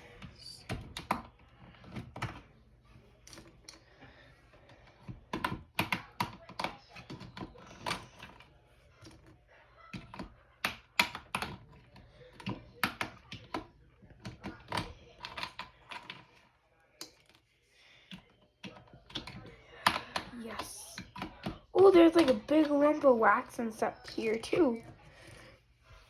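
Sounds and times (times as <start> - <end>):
plastic keyboard parts clicking: 9.9 - 16.3.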